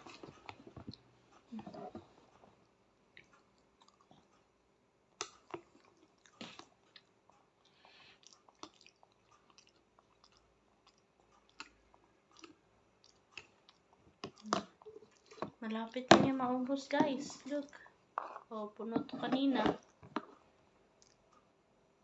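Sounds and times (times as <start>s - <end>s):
child chewing: 0.0s - 4.6s, 5.2s - 16.0s, 19.8s - 21.5s.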